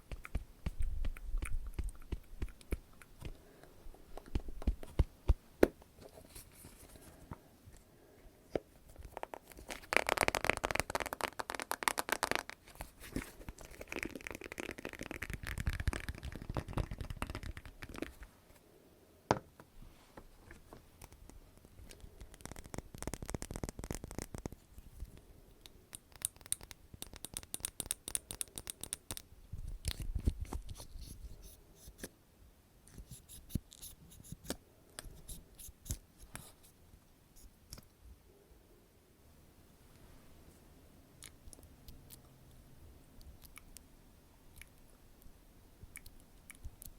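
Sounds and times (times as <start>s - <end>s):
scratching and crinkling: 8.8s - 18.6s.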